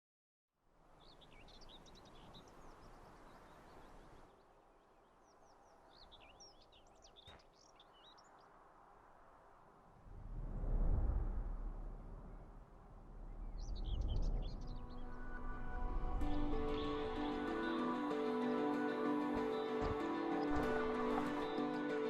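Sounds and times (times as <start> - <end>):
low outdoor hiss: 0.6 - 10.0
birds chirping: 0.9 - 8.6, 13.1 - 22.0.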